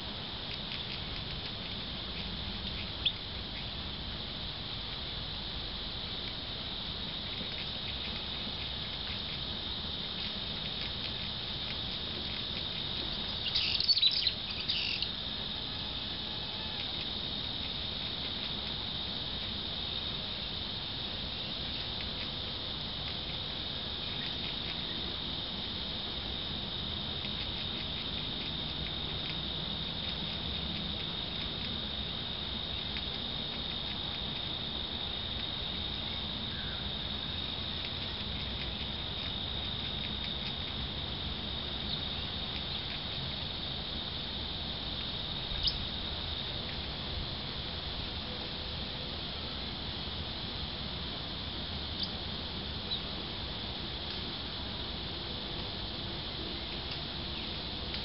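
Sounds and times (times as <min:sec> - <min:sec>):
high-pitched insect chorus: 0:00.0 - 0:58.0
birds pecking at seed feeder: 0:00.4 - 0:03.7, 0:07.0 - 0:19.5, 0:23.0 - 0:25.2, 0:27.1 - 0:40.9.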